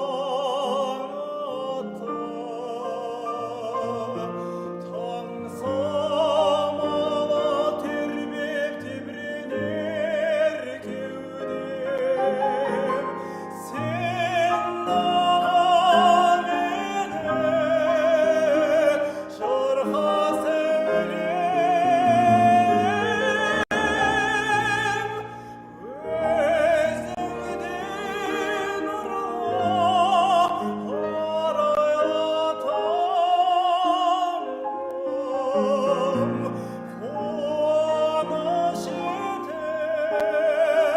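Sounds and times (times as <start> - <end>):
operatic voice singing: 0.0 - 40.9
piano accompaniment: 0.0 - 40.9.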